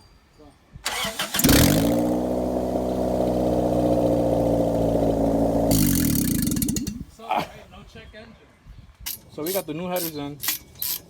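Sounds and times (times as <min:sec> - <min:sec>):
engine cranking: 0:00.9 - 0:07.1
car engine idling loud: 0:01.4 - 0:07.0.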